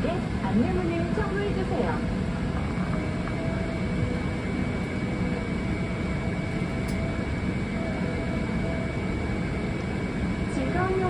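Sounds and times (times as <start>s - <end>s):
airliner cabin noise: 0.0s - 11.0s
faint high whine: 0.0s - 11.0s.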